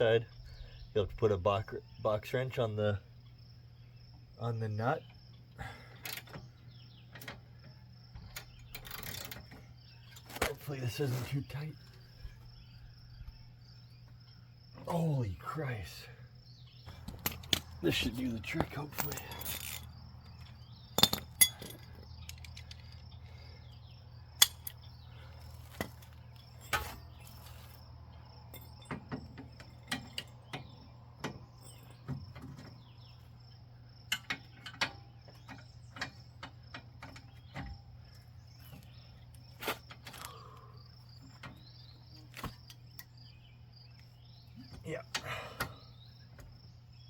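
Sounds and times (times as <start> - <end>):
crickets chirping: 0.0 - 47.0
wrenches clicking and clinking: 8.3 - 10.4, 16.9 - 23.3, 24.4 - 27.8.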